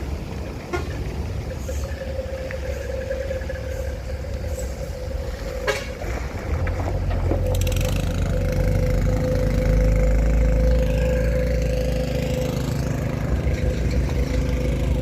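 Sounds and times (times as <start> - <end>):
truck engine and road rumble: 0.0 - 15.0.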